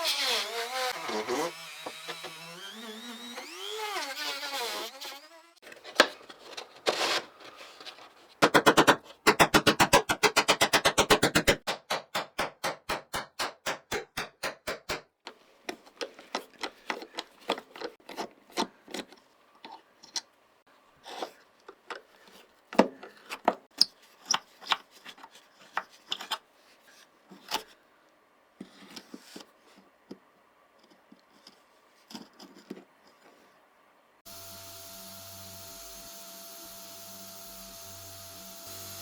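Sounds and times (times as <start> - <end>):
hand scraping a workpiece: 5.6 - 11.7.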